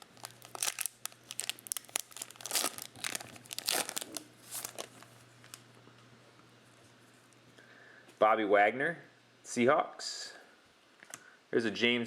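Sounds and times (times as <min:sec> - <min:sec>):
plastic wrappers crinkling: 0:00.0 - 0:05.7.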